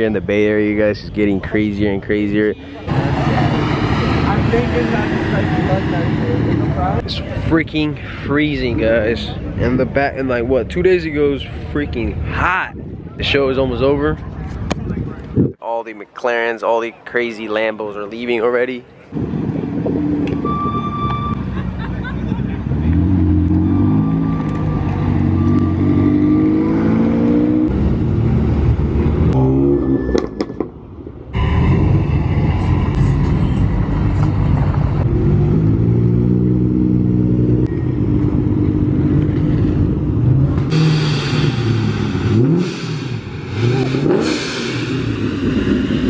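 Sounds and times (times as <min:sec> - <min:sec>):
sports car engines revving: 0:02.5 - 0:07.6, 0:19.1 - 0:30.7, 0:31.4 - 0:46.0.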